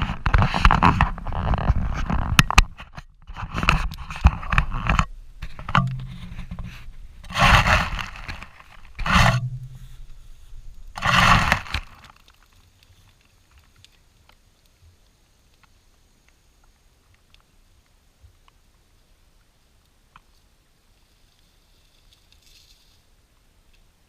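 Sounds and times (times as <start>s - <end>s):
scraping and rustling: 0.0s - 13.9s.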